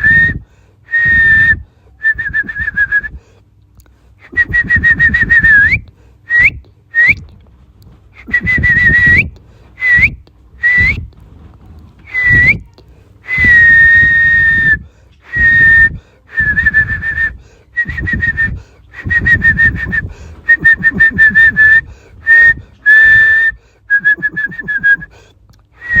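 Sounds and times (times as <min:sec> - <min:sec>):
whistled notes: 0:08.2 - 0:11.1, 0:12.1 - 0:12.6, 0:13.3 - 0:25.1, 0:25.8 - 0:26.0.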